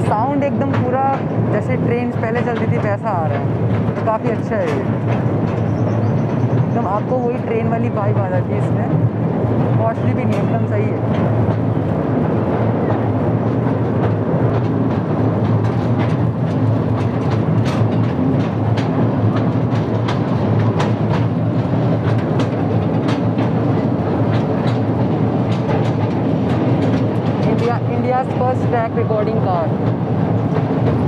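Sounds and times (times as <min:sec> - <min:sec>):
small train low rumbling: 0:00.0 - 0:31.0
wheels clicking over rail joints: 0:00.0 - 0:31.0.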